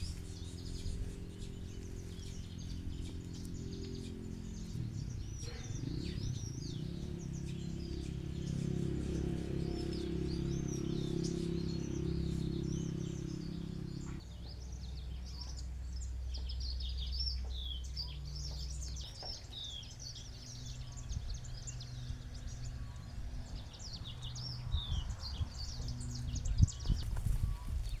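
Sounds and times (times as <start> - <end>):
low rumble: 0.0 - 14.2, 20.0 - 28.0
low steady hum: 0.0 - 27.9
small birds chirping: 0.0 - 28.0.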